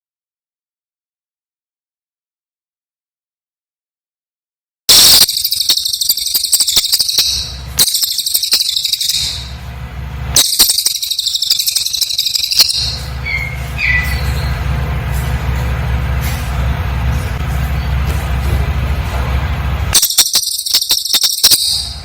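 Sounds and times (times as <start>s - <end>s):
short bird chirps: 4.9s - 9.5s, 10.4s - 14.6s
low steady hum: 4.9s - 22.0s
songbird trilling: 5.0s - 9.6s, 10.4s - 14.7s, 20.0s - 22.0s.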